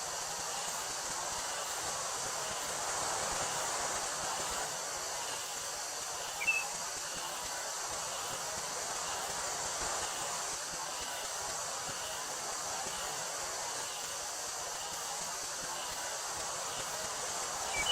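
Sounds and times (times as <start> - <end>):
wind rustling through wheat: 0.0 - 17.9
cicadas buzzing: 0.2 - 17.9
short chirp: 6.4 - 6.7.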